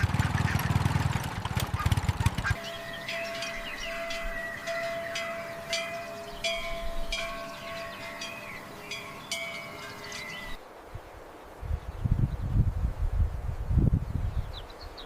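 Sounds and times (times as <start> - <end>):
metallic chimes ringing: 2.6 - 10.6.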